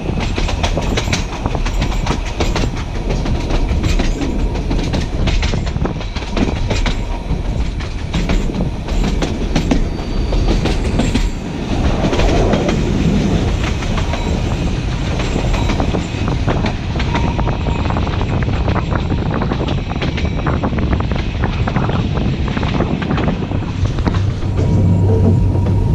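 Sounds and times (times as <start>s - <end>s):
train wheels rumbling on rails: 0.0s - 25.9s.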